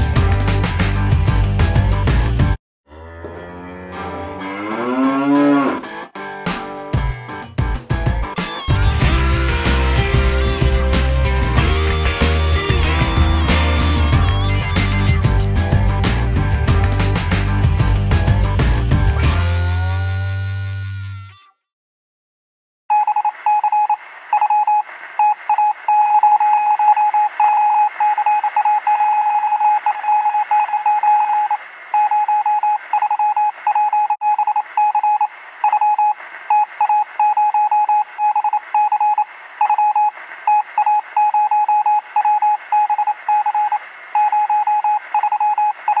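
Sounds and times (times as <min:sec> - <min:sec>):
morse code beeps: 0:22.9 - 0:46.0.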